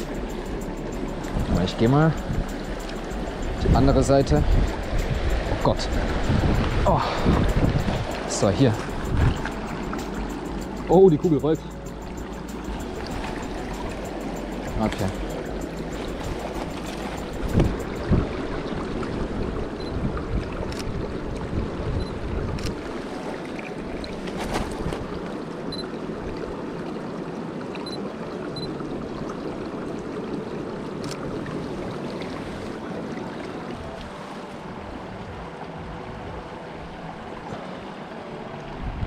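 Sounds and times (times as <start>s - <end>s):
river water rushing: 0.0s - 39.0s.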